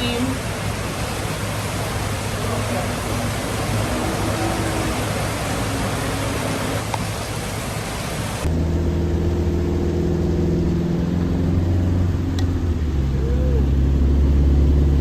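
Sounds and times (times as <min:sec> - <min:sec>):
vehicle engine droning: 0:00.0 - 0:07.6, 0:08.3 - 0:15.0
rain hissing: 0:00.0 - 0:08.5.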